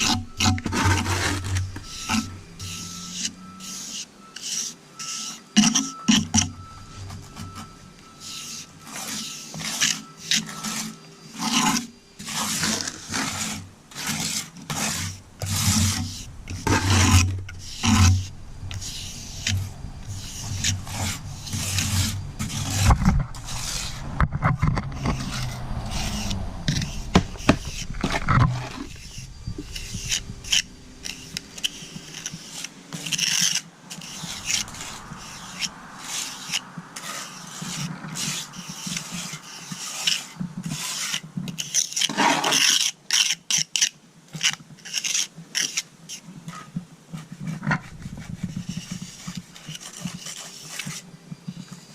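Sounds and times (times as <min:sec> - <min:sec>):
hand trowel scraping mortar: 0:00.0 - 0:51.9
low rumble: 0:15.0 - 0:32.7, 0:33.9 - 0:37.0.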